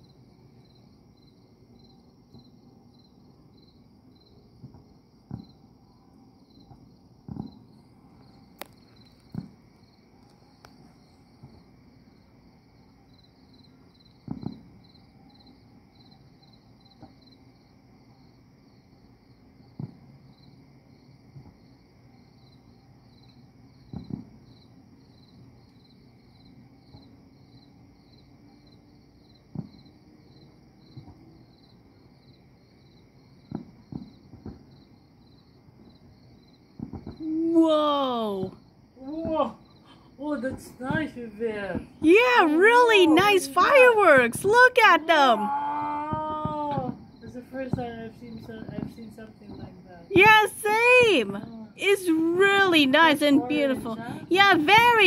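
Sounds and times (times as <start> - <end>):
crickets chirping: 0.0 - 55.0
distant fireworks bangs: 6.6 - 9.7, 14.2 - 14.8, 23.9 - 24.4, 33.4 - 34.8, 36.7 - 37.3, 46.0 - 55.0.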